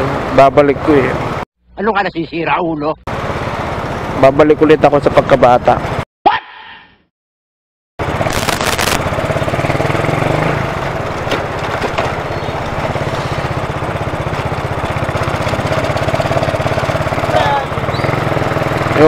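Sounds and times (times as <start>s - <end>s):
motorcycle engine running: 8.0s - 19.0s.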